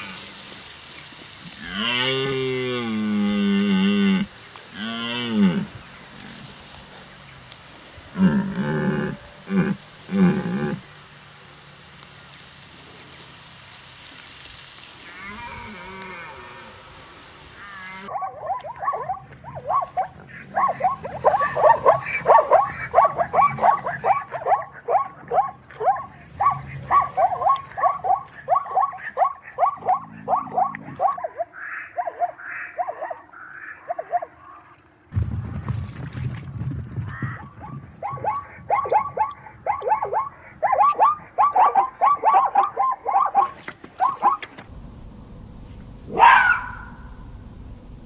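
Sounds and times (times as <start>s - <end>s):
faint hiss: 0.0s - 18.1s, 44.6s - 48.0s
animal calling rapidly: 17.6s - 34.6s, 37.1s - 44.5s, 46.1s - 47.4s.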